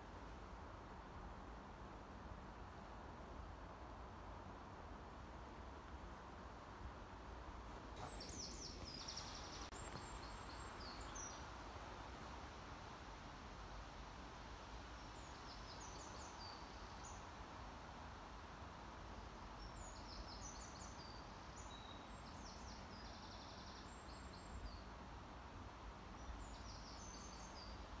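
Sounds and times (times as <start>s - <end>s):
steady low hiss: 0.0s - 28.0s
faint birdsong: 7.8s - 12.4s, 14.8s - 17.8s, 18.4s - 28.0s.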